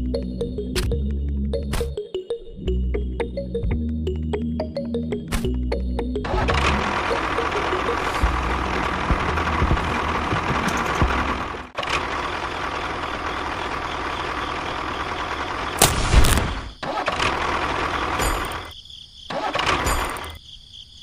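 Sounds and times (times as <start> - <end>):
small tractor engine running: 5.6 - 15.8, 16.8 - 18.7, 19.3 - 20.4.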